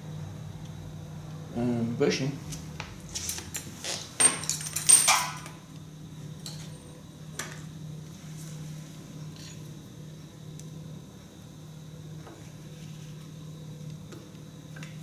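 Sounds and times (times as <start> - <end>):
metal tools clinking and scraping: 3.2 - 5.6.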